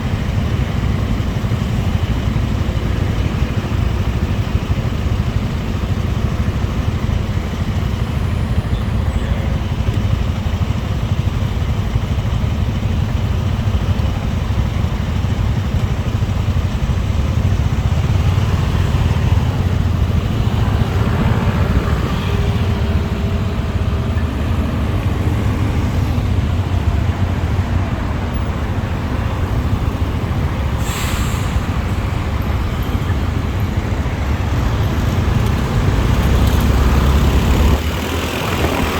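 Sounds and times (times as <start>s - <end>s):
motorcycle engine rumble: 0.0s - 38.9s
vehicles passing: 0.0s - 38.9s
rush of air: 30.7s - 32.2s
brief sharp hiss: 30.8s - 31.8s.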